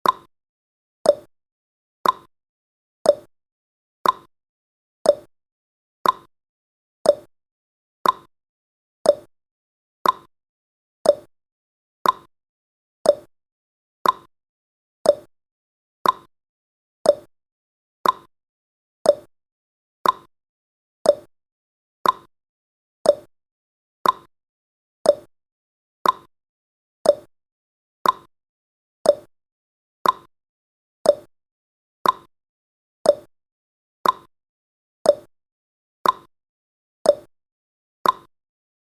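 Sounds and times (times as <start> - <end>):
clock ticking: 2.0 - 2.3, 6.0 - 6.3, 8.0 - 8.3, 10.0 - 10.3, 12.0 - 12.3, 13.1 - 13.3, 14.0 - 14.3, 15.1 - 15.3, 16.0 - 16.3, 18.0 - 18.3, 20.0 - 20.3, 21.1 - 21.3, 22.0 - 22.3, 24.0 - 24.3, 26.0 - 26.3, 27.1 - 27.3, 28.0 - 28.3, 29.1 - 29.3, 30.0 - 30.3, 31.1 - 31.3, 32.0 - 32.3, 33.1 - 33.3, 34.0 - 34.3, 36.0 - 36.3, 38.0 - 38.3.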